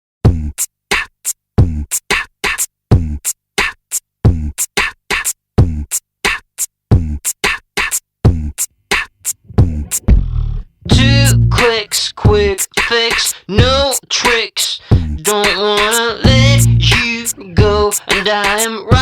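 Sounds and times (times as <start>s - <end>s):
electronic drum-machine beat: 0.2s - 19.0s
deep kick drum: 9.4s - 11.6s, 12.3s - 12.5s, 13.6s - 13.9s, 14.9s - 15.2s, 16.2s - 17.0s, 17.6s - 17.9s.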